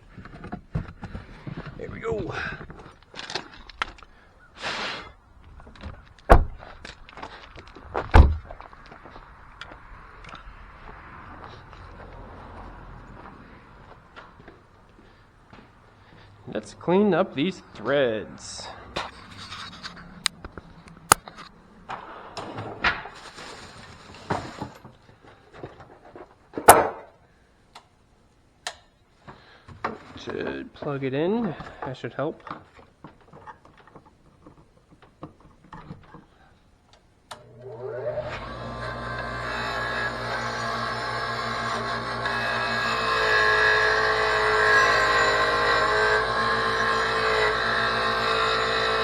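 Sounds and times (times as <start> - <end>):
rustle: 22.9 - 26.5
loud thunks of objects set down: 26.7 - 27.1.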